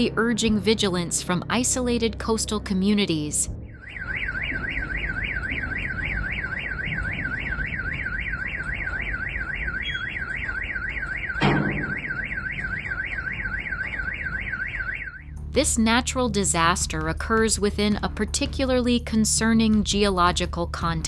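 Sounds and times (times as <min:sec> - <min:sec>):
electronic alarm siren warbling: 0:02.9 - 0:16.0.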